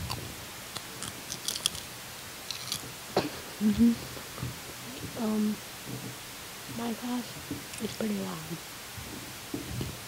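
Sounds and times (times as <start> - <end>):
popcorn being chewed: 0.0 - 3.0.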